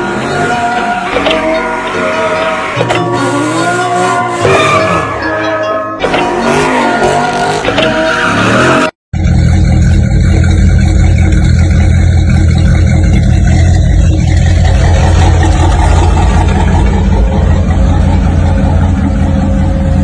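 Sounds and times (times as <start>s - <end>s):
car engine idling: 9.2s - 20.0s.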